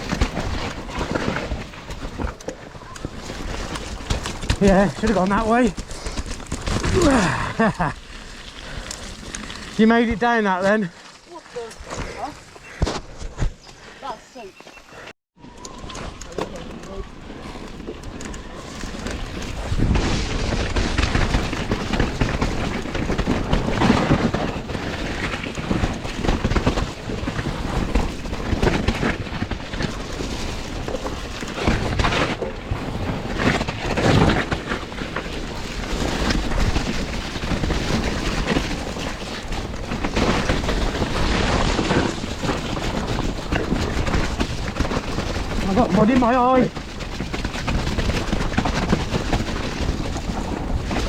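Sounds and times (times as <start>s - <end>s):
bike tyre and frame noise: 0.0s - 51.0s
wind rumbling over microphone: 15.4s - 51.0s.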